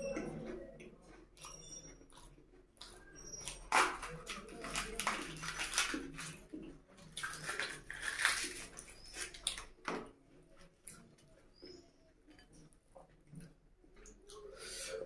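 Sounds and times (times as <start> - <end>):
wet chewing and smacking: 0.0 - 15.0
fried bread tearing by hand: 3.2 - 9.9.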